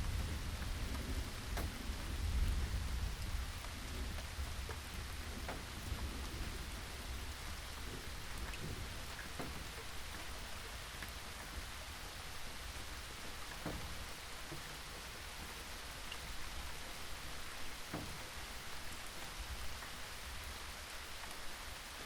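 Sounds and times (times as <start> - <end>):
distant thunder rumble: 0.0 - 16.9
steady rain: 0.0 - 22.0.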